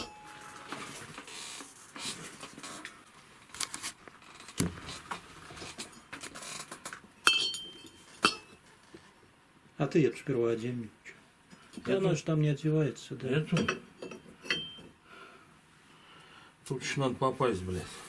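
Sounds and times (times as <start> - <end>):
metal parts and tools clinking: 5.7 - 8.6.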